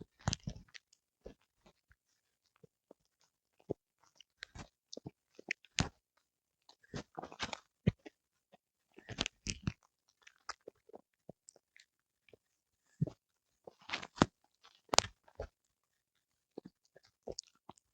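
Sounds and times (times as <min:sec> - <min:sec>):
dog crunching on an eel: 0:16.6 - 0:17.8.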